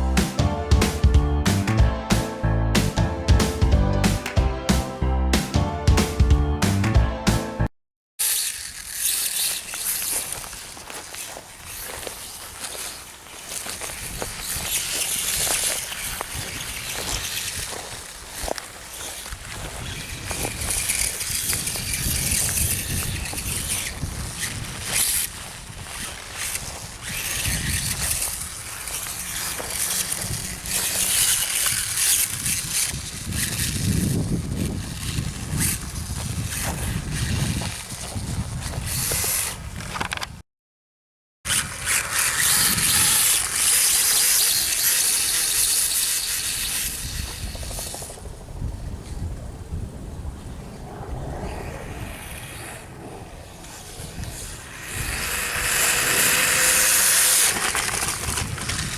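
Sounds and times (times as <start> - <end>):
mechanical scraping: 8.2 - 40.4, 41.5 - 48.3, 51.5 - 58.9
radio-controlled dirt bike running: 8.2 - 40.4, 41.5 - 58.9
tyres scrabbling on dirt: 8.2 - 40.4, 41.5 - 49.3, 50.9 - 58.9.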